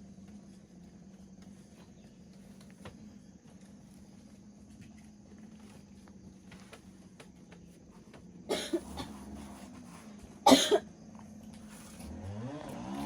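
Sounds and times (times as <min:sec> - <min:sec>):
motor engine: 0:00.0 - 0:13.0
person coughing: 0:08.5 - 0:09.2, 0:10.5 - 0:10.9.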